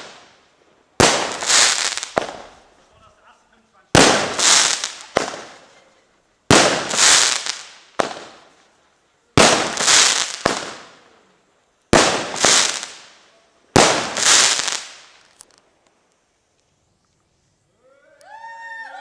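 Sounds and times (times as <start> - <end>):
fireworks bangs: 0.0 - 8.7, 9.4 - 11.2, 11.9 - 15.5
fireworks crackling and hissing: 0.0 - 17.8.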